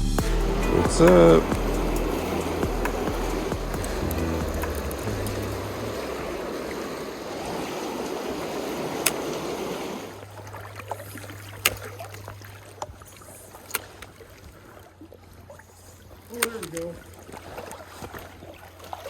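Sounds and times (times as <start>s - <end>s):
low steady hum: 0.0s - 13.1s
river water rushing: 0.1s - 14.8s.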